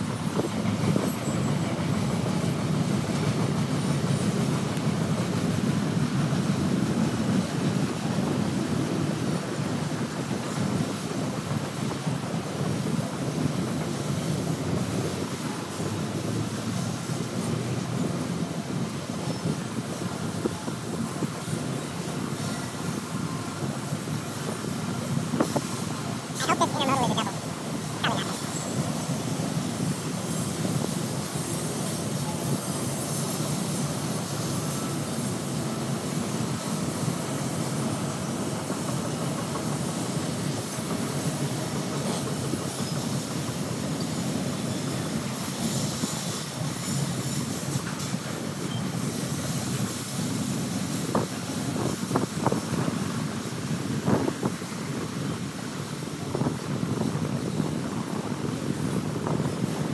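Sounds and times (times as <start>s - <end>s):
train wheel squeals: 0.0s - 26.3s, 28.3s - 53.9s, 54.6s - 59.9s
freight train rumbling past: 0.0s - 59.9s.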